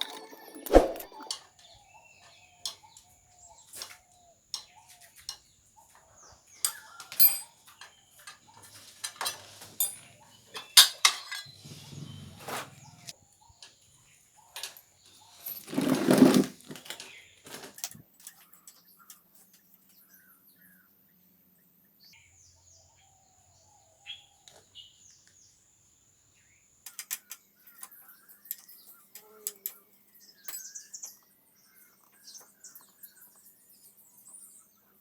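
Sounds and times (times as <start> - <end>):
metal parts rattling: 0.0 - 1.4, 6.6 - 12.1, 15.4 - 17.9
metal tools clinking: 0.0 - 1.4, 6.6 - 13.1, 14.6 - 18.8.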